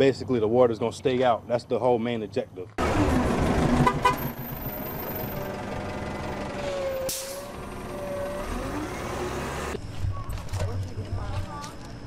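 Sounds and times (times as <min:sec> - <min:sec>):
vehicle engine running: 0:02.8 - 0:09.8.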